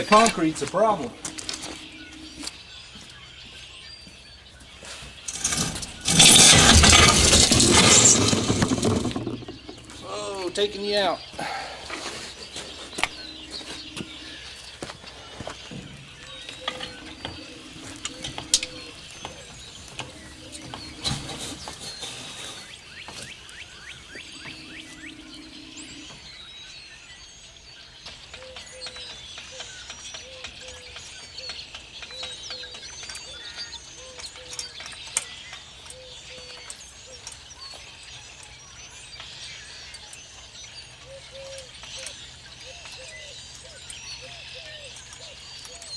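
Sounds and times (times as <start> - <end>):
low steady tone: 0.0 - 2.5, 12.9 - 15.3
birds chirping: 0.0 - 45.9
lower steady bird calls: 0.0 - 45.9.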